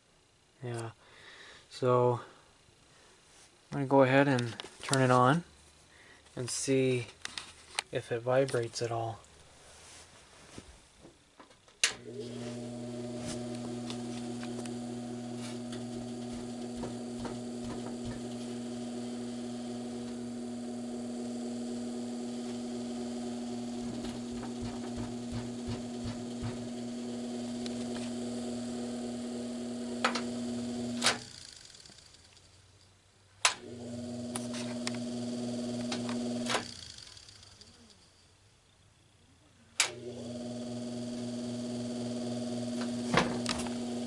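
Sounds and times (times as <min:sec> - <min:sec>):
electric motor humming: 0:12.0 - 0:32.2, 0:33.6 - 0:37.9, 0:39.9 - 0:44.0.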